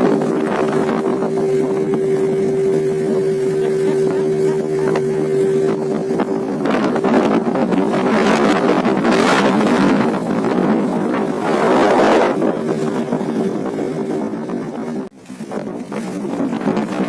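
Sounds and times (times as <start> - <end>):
boat engine running: 0.0 - 17.0
wind rushing: 5.3 - 17.0.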